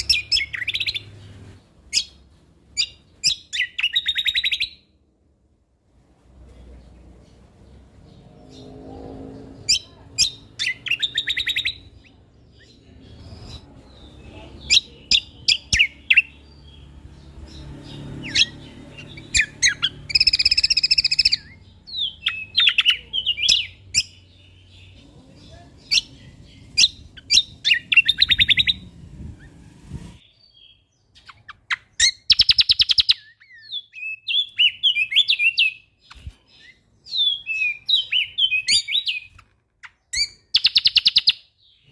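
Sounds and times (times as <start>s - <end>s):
songbird singing: 0.0s - 5.0s, 6.2s - 41.9s
low background rumble: 23.0s - 30.2s.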